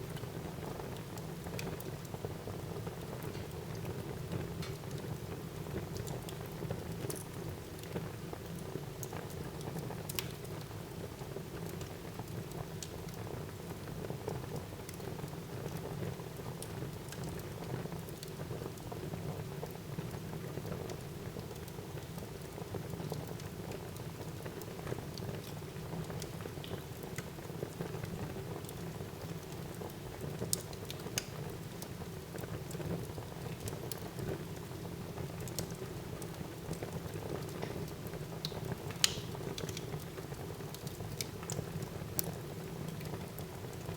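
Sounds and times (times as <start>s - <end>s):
fire crackling and popping: 2.9s - 10.6s, 19.6s - 43.9s.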